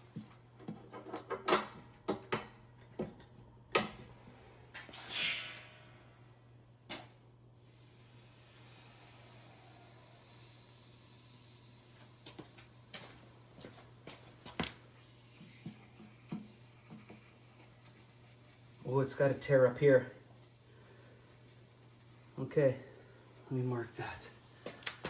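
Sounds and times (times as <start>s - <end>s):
compressed air puff: 4.3s - 6.3s, 7.6s - 13.6s
compressed air hissing from hose: 7.6s - 25.0s.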